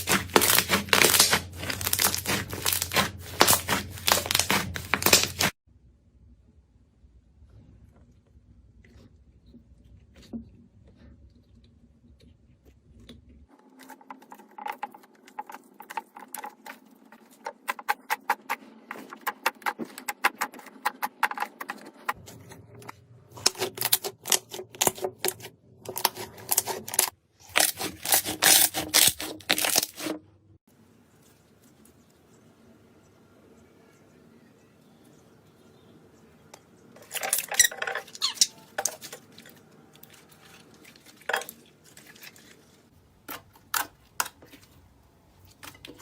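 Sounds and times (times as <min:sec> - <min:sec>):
slime crackling when squeezed: 0:00.0 - 0:05.5.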